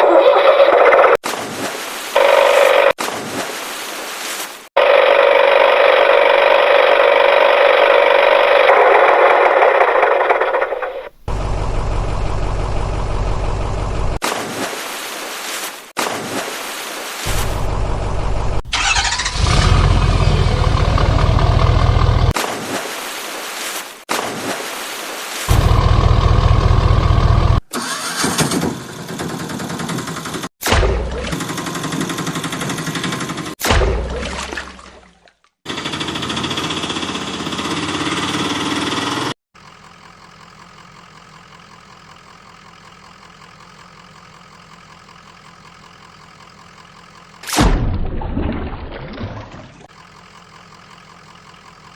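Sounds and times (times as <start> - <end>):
engine starting whir: 4.8 - 14.2, 17.3 - 22.4, 25.5 - 30.5, 35.7 - 39.4
tractor engine running: 4.8 - 14.2, 17.3 - 22.4, 25.5 - 33.6, 35.7 - 47.5, 49.8 - 51.9.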